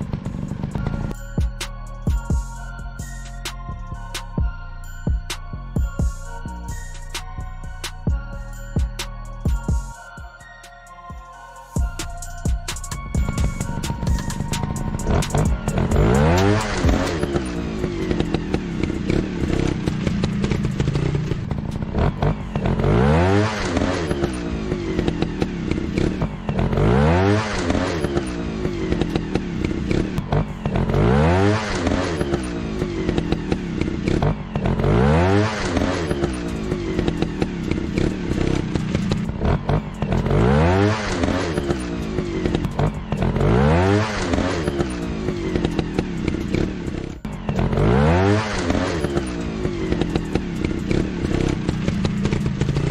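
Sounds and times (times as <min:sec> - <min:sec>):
dirt bike engine revving: 0:00.0 - 0:01.1, 0:13.2 - 0:52.9
clatter and scraping: 0:12.9 - 0:52.9.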